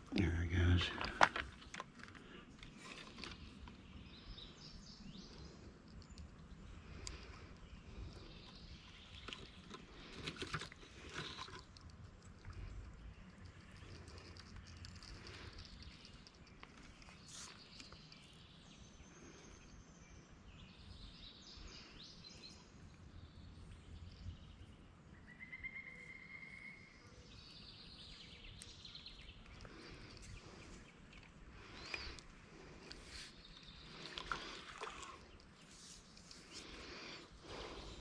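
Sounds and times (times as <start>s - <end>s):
bird calls: 24.1s - 38.0s
bird trill: 25.2s - 27.2s.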